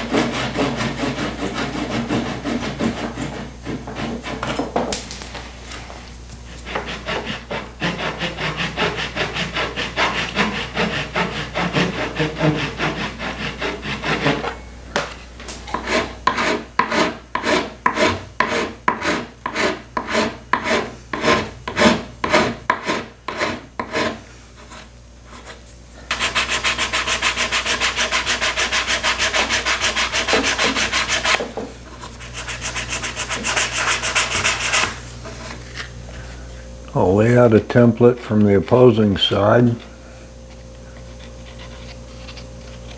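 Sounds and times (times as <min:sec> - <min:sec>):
sanding wood by hand: 0:00.0 - 0:04.6, 0:06.5 - 0:14.5, 0:15.8 - 0:31.4, 0:32.2 - 0:35.6
steady buzz: 0:00.0 - 0:04.8, 0:05.5 - 0:42.9.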